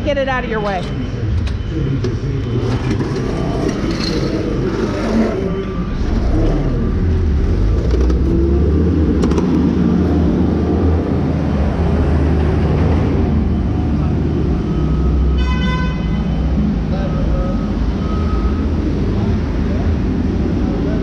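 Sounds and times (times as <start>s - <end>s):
vehicle engine running: 0.0s - 15.4s.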